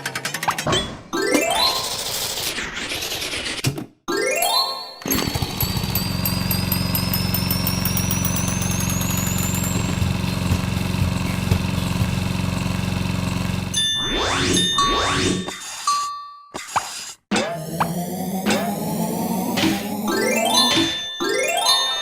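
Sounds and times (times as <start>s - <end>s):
low mechanical drone: 5.2s - 13.8s, 17.6s - 20.5s.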